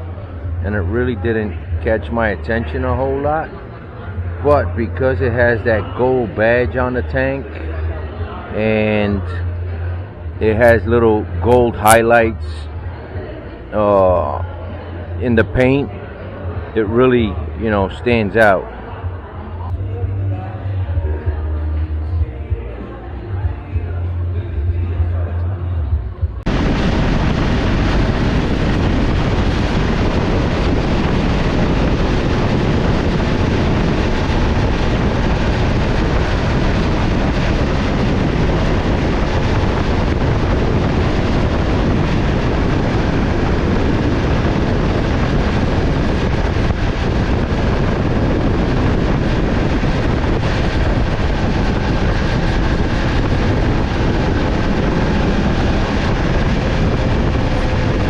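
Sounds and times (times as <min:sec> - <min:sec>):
wind and road noise: 0:25.9 - 0:58.0
motorcycle engine running: 0:26.4 - 0:58.0.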